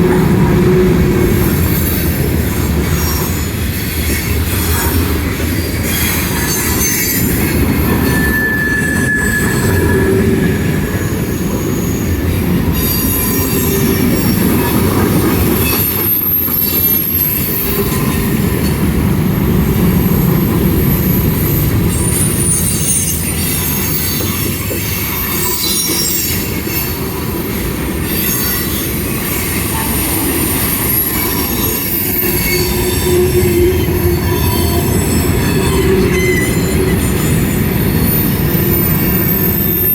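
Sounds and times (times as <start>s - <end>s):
train wheels rumbling on rails: 0.0s - 39.9s
wheel squeals: 1.3s - 18.7s, 19.8s - 39.9s.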